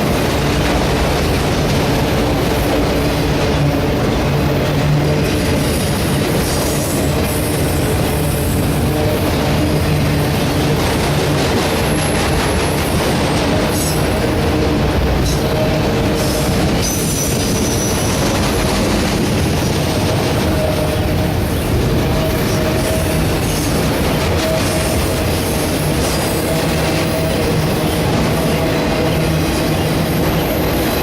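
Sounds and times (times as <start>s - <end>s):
wheels rumbling on rails: 0.0s - 31.0s
high wheel squeals: 15.2s - 19.1s.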